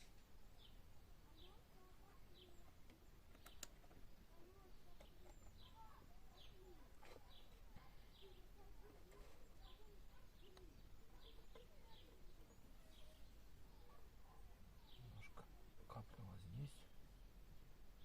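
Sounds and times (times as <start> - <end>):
faint clicks: 2.7 - 4.1, 10.4 - 12.5.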